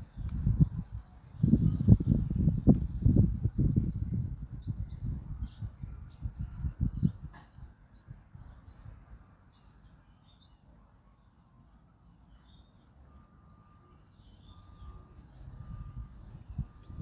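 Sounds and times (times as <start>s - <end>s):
low wind rumble: 0.0s - 10.0s, 14.3s - 17.0s
small birds chirping: 0.0s - 17.0s.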